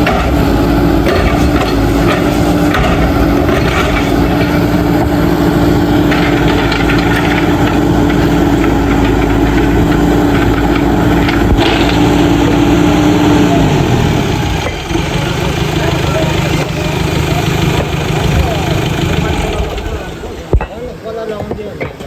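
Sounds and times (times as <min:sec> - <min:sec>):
backhoe diesel engine running: 0:00.0 - 0:22.0
short clatter: 0:06.0 - 0:13.6.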